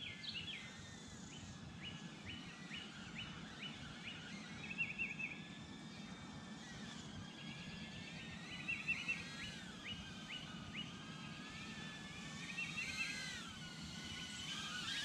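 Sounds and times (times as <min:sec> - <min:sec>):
outdoor background noise: 0:00.0 - 0:15.0
songbird calling: 0:01.3 - 0:05.4, 0:08.5 - 0:10.9.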